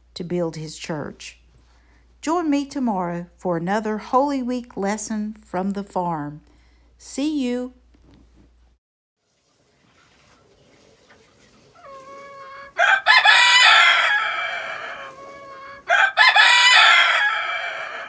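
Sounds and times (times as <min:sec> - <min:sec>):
rooster crowing: 0:11.8 - 0:18.0.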